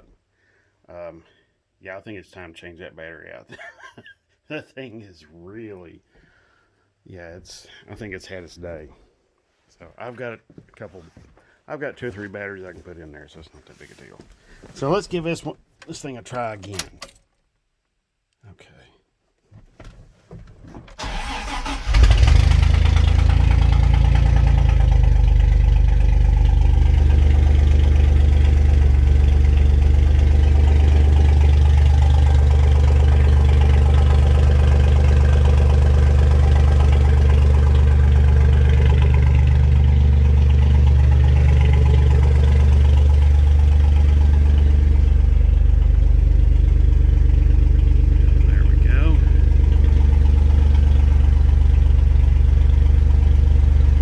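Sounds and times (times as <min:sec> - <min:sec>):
engine cranking and idling: 0:20.9 - 0:54.0.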